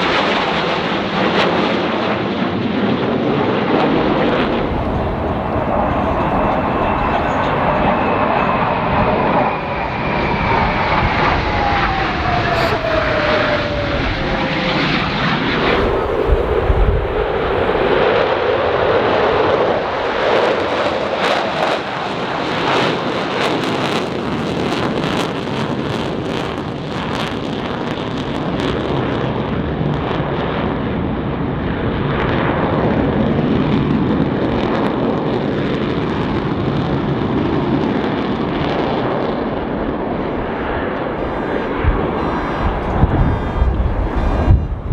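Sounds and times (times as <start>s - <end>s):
jet flying past: 3.6s - 20.0s, 39.1s - 44.9s.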